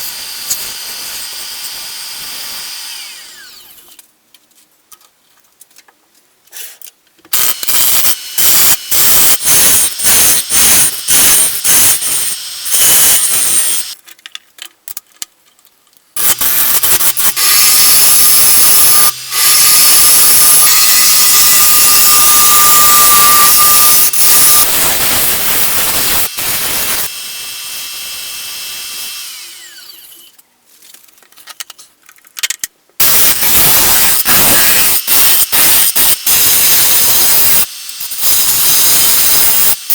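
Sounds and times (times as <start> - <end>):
lathe tool cutting wood: 0.0 - 3.8, 7.5 - 14.0, 16.2 - 30.3, 33.0 - 39.9.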